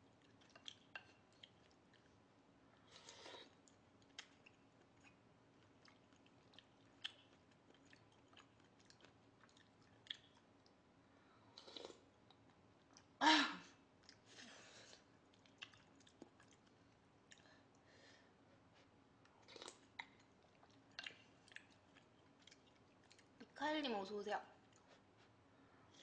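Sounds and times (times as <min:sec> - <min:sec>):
close chewing: 0:00.0 - 0:02.2, 0:02.8 - 0:10.8, 0:15.0 - 0:17.5, 0:19.3 - 0:23.4, 0:24.6 - 0:25.4
breaths: 0:17.4 - 0:18.5.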